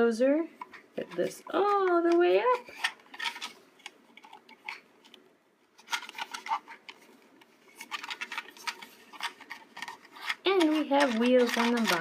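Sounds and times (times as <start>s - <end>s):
plastic toy clicks and knocks: 7.8s - 12.0s.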